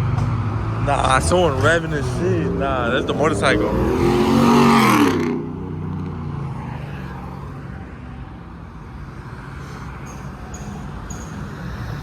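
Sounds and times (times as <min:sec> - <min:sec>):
motorcycle engine revving: 0:00.0 - 0:07.3.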